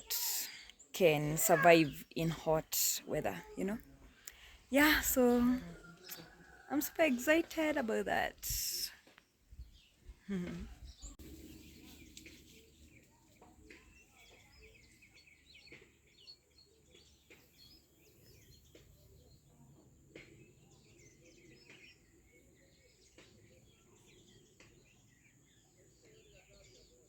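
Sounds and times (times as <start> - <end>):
birds chirping and calling: 0.0 - 8.9.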